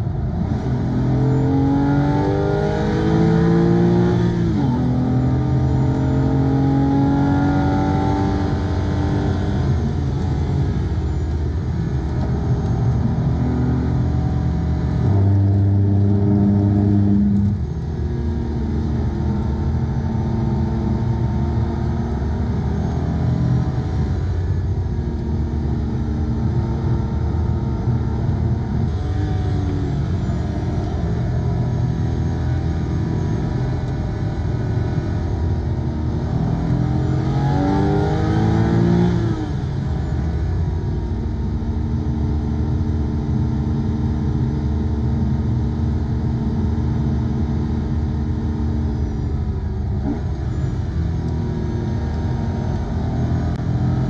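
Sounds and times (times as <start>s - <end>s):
car engine revving hard: 0.3s - 24.6s, 25.3s - 40.5s.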